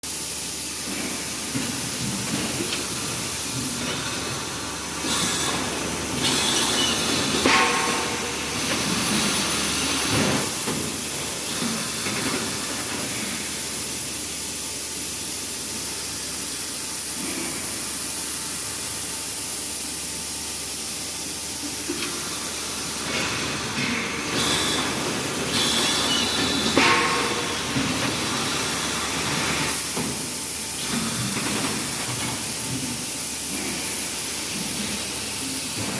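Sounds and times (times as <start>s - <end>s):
machine knocks: 6.2s - 9.3s, 25.8s - 28.3s
printing machine clattering: 19.4s - 35.9s.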